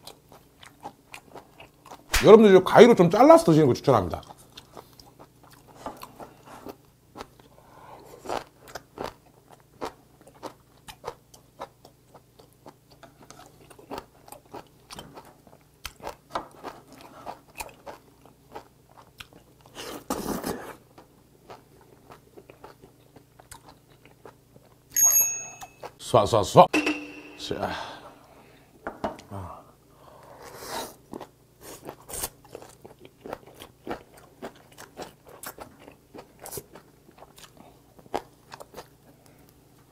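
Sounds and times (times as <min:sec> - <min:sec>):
close chewing with wet mouth clicks: 0:08.2 - 0:19.8, 0:20.9 - 0:24.8, 0:31.1 - 0:39.6.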